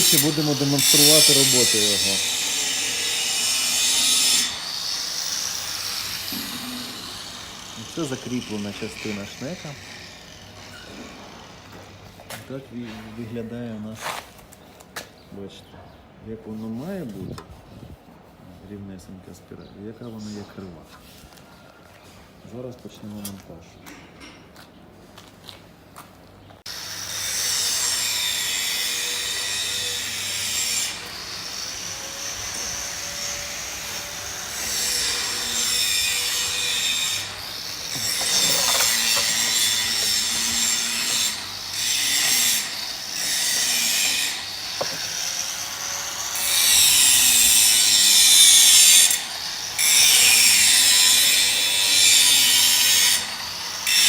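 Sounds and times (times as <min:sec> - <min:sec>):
power tool rasping: 0:00.0 - 0:12.0, 0:26.7 - 0:54.0.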